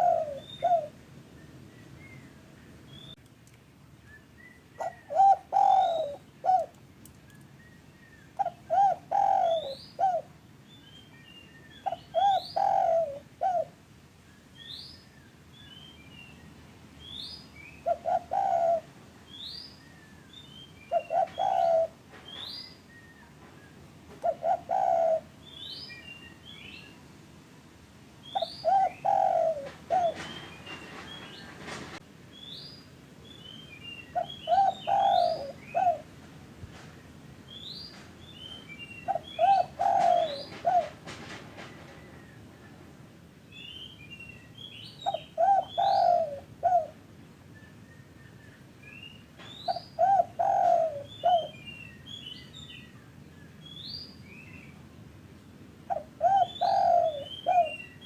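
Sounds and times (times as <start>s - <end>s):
doves cooing: 0.0s - 1.0s, 4.8s - 6.8s, 8.4s - 10.4s, 11.8s - 13.8s, 17.8s - 18.9s, 20.9s - 22.0s, 24.2s - 25.4s, 28.4s - 32.0s, 34.2s - 36.1s, 39.1s - 42.4s, 45.0s - 47.0s, 49.7s - 51.6s, 55.9s - 57.8s
small birds chirping: 0.0s - 3.4s, 4.0s - 13.7s, 28.2s - 31.6s, 32.3s - 36.1s, 37.0s - 40.9s, 43.5s - 46.9s, 47.7s - 58.0s.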